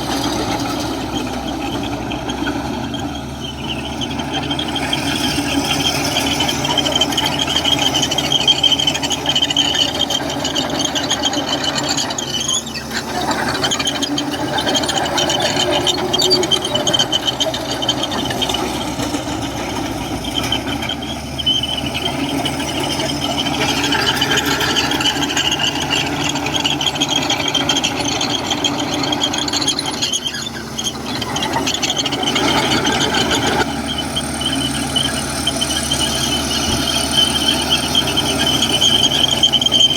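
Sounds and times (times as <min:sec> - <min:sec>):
bulldozer diesel engine running: 0:00.0 - 0:39.9
metallic squeal of steel tracks: 0:00.0 - 0:39.9.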